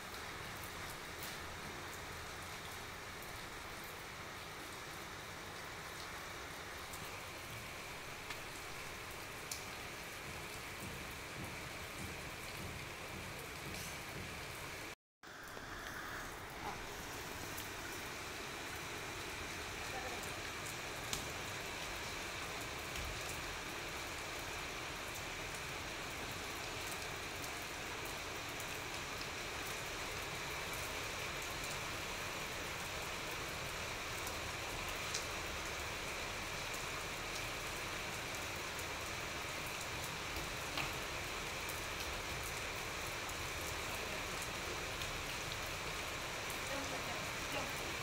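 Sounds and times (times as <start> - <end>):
rain on a tiled roof: 0.0 - 48.0
water drips ticking: 8.2 - 14.6.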